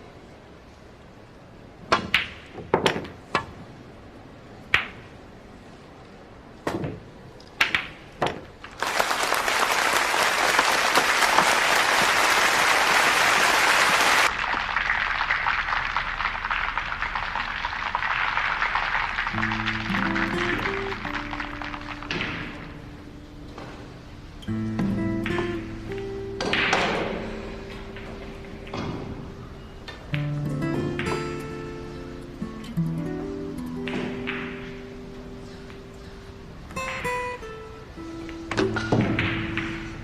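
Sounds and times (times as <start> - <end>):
applause: 8.7 - 22.7
billiard balls clacking: 19.0 - 23.9, 24.7 - 31.8, 38.3 - 40.0.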